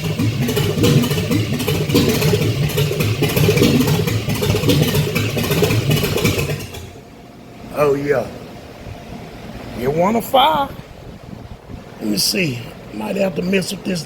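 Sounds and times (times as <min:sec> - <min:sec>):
car engine running unevenly: 0:00.0 - 0:07.1.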